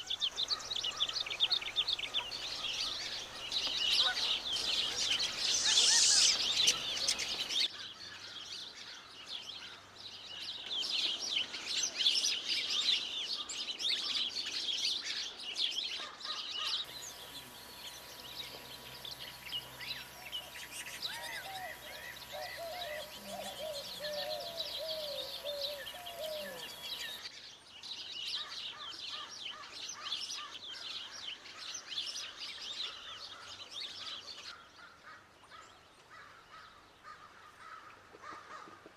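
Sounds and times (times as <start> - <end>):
birds chirping and singing: 0.0 - 38.6
sliding bird call: 0.5 - 7.5.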